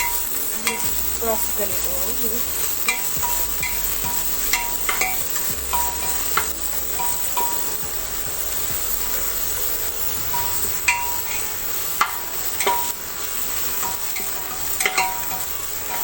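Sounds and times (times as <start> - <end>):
onions sizzling in hot oil: 0.0 - 16.0
spoon clinking against a pan: 13.6 - 16.0.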